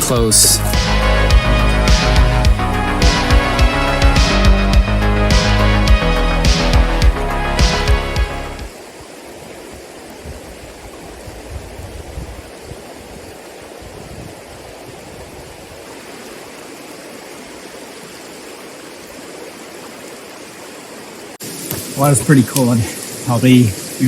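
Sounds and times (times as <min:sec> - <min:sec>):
creek water over rocks: 0:08.6 - 0:24.0.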